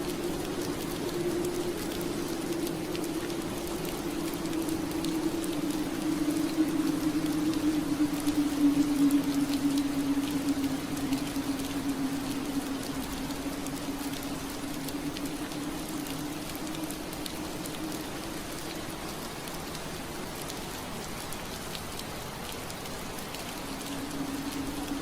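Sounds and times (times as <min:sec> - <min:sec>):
rain on window glass: 0:00.0 - 0:25.0.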